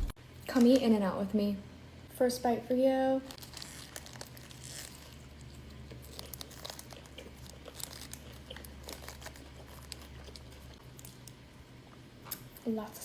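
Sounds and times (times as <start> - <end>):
low steady hum: 0.0 - 13.0
paper wrapper crinkling: 3.3 - 10.8
person chewing: 3.4 - 12.6.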